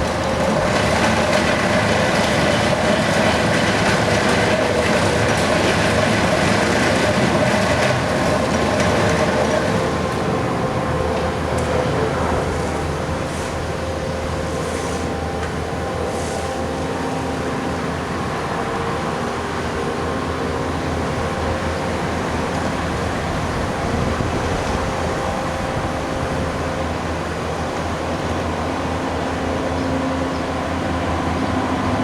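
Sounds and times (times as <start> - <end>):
constant grinding noise: 0.0 - 32.0
diesel engine running: 0.0 - 32.0.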